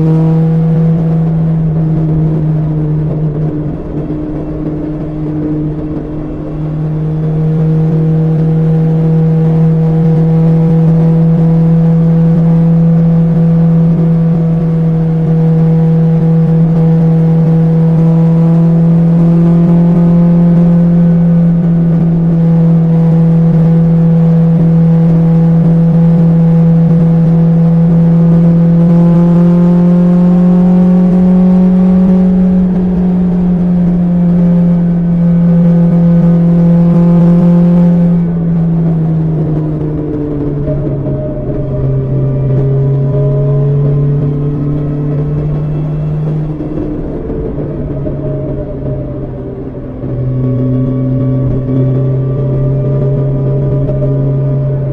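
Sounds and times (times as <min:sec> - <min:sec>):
motorcycle engine cruising: 0:00.0 - 0:54.9.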